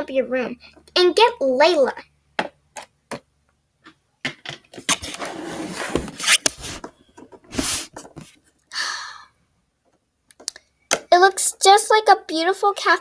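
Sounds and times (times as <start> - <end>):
plastic toys clicking and tapping: 9.8 - 11.6.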